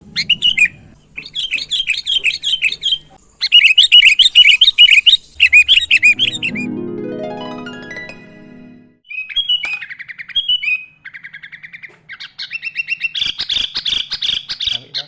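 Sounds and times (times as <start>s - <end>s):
bulbul singing chirping notes: 0.0s - 6.8s.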